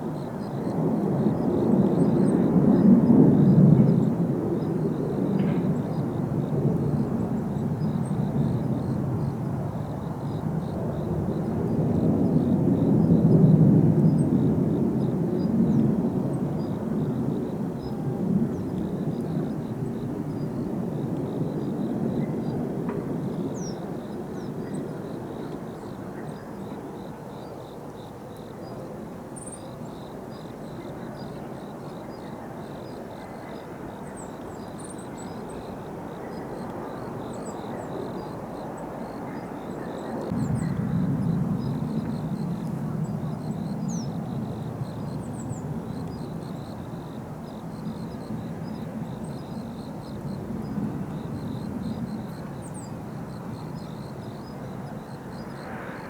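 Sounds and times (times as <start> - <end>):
distant jet aircraft rumbling: 40.1 - 46.7.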